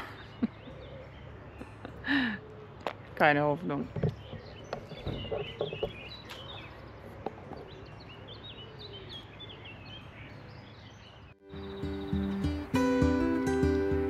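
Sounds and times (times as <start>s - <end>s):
birds chirping: 0.0s - 14.0s
outdoor background hiss: 9.2s - 14.0s.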